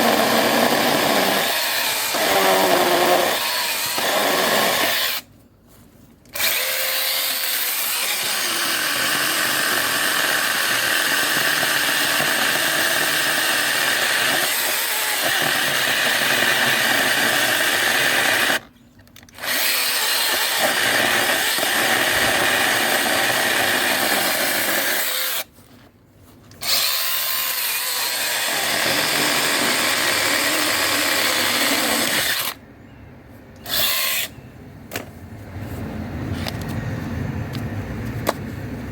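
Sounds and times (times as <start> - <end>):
mini chainsaw whining: 0.0 - 5.2, 6.4 - 18.6.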